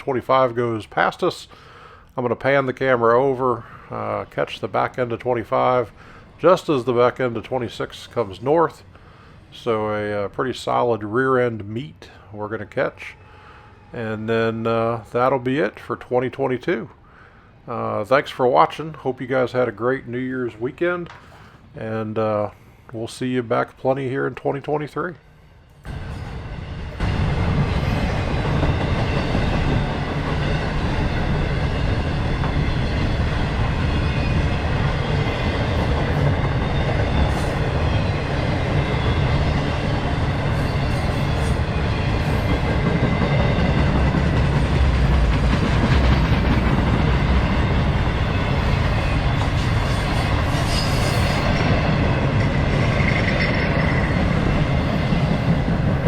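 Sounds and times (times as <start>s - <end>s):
freight train wheels rumbling on rail: 25.8s - 56.0s
clickety-clack over rail joints: 27.0s - 50.6s, 51.2s - 56.0s.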